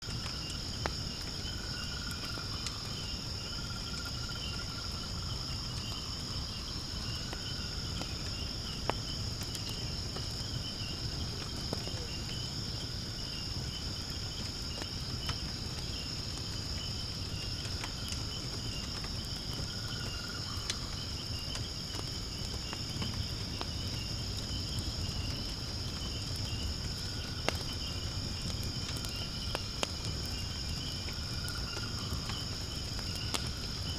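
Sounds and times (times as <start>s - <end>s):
crickets and insects chirping: 0.0s - 33.9s
firewood crackling: 0.0s - 33.9s.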